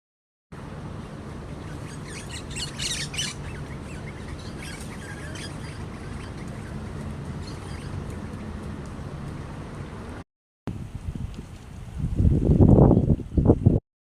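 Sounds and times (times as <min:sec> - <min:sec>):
low background rumble: 0:00.6 - 0:10.2
birds chirping and squawking: 0:01.5 - 0:08.5.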